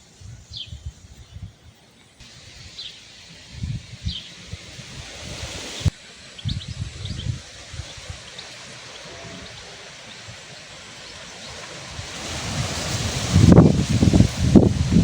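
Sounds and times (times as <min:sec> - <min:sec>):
faint bird chirps: 0:00.0 - 0:04.7, 0:05.6 - 0:11.7
wind buffeting microphone: 0:00.0 - 0:15.0
wind rustling foliage: 0:00.0 - 0:15.0.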